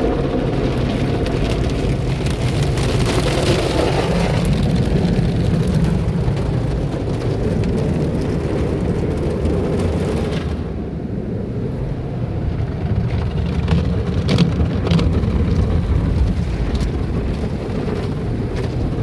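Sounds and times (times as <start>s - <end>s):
water spraying on car body: 0.0s - 10.8s
low machinery rumble: 0.0s - 19.0s.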